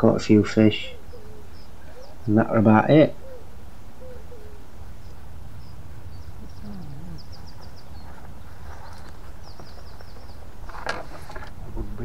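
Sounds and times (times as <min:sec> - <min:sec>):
small birds chirping: 0:00.0 - 0:12.0
low rumble: 0:11.4 - 0:12.0.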